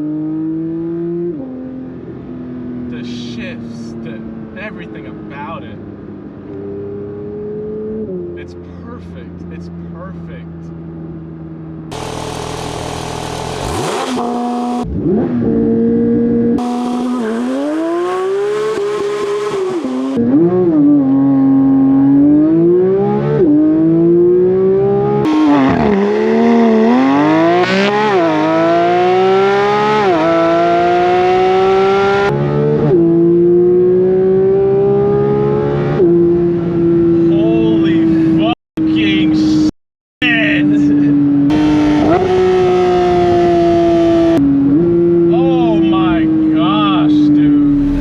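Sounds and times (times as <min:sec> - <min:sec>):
car engine revving through gears: 0:00.0 - 0:02.8, 0:11.9 - 0:37.3, 0:41.4 - 0:45.3, 0:47.2 - 0:48.0.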